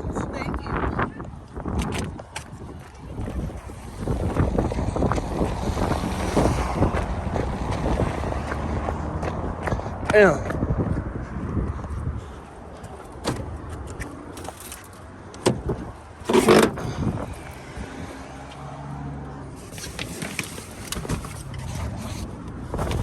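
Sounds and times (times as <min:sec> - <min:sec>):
car engine humming: 0:02.6 - 0:10.1, 0:12.5 - 0:23.0.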